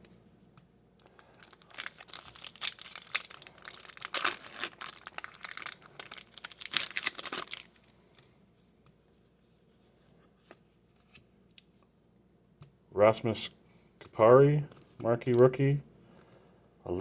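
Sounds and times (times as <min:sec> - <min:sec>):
card pack wrapper tearing: 0:01.0 - 0:07.9.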